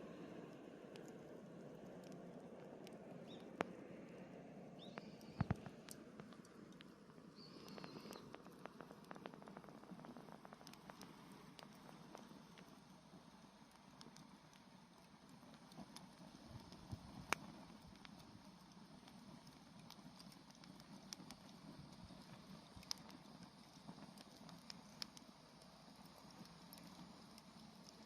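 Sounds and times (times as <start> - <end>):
campfire crackling and popping: 0.3 - 28.0.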